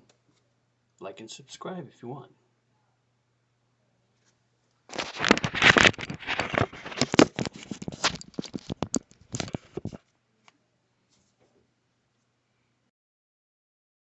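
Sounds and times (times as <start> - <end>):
handling clicks knocks and rustling: 4.9 - 10.0.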